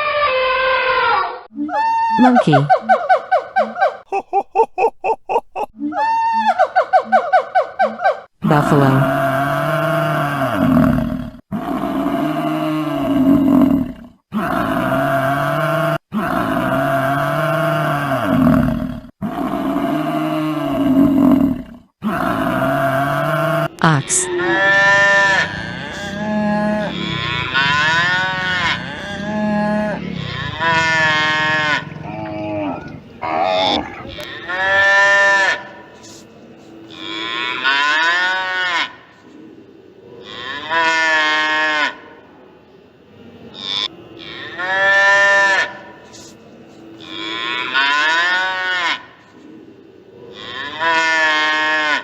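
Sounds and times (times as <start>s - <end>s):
ox mooing: 8.7s - 36.2s, 47.0s - 49.1s
buffalo bellowing: 22.0s - 36.2s.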